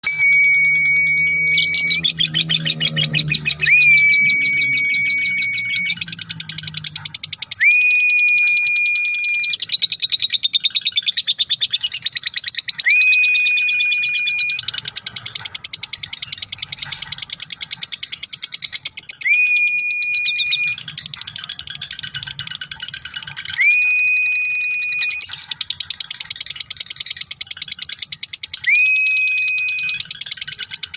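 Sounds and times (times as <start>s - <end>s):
whistled note: 0.0s - 6.5s, 7.5s - 9.6s, 12.8s - 14.7s, 19.2s - 20.8s, 23.4s - 25.3s, 28.6s - 30.1s
lovebird chattering trill: 0.8s - 7.7s, 8.3s - 30.9s.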